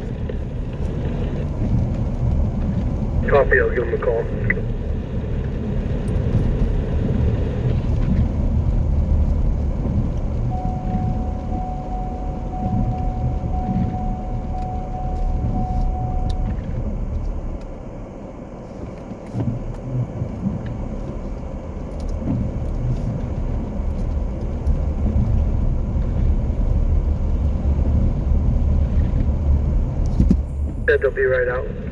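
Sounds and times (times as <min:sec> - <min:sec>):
car engine running: 0:00.0 - 0:31.9
short beeps: 0:10.5 - 0:17.4, 0:30.7 - 0:31.8.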